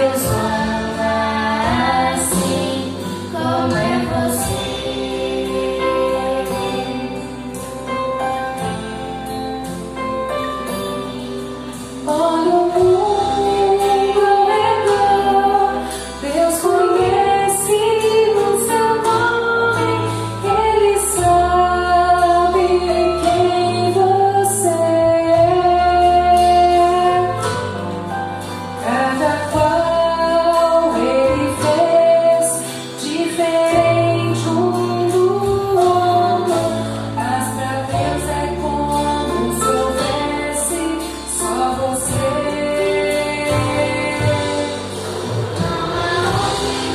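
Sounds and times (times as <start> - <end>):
woman singing song: 0.0 - 7.9, 12.0 - 46.9
instrumental accompaniment: 0.0 - 46.9.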